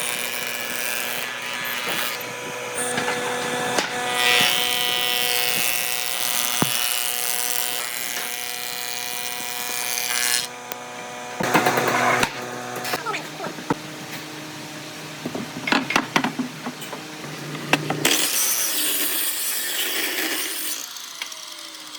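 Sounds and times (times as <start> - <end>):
power tool cutting wood: 0.0 - 21.9
sharp knocks: 6.5 - 7.2.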